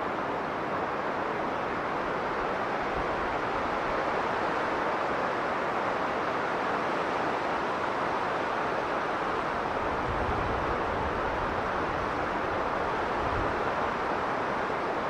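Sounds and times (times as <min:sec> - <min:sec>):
blizzard wind blowing: 0:00.0 - 0:15.0
low rumble of wind gust: 0:09.4 - 0:14.9.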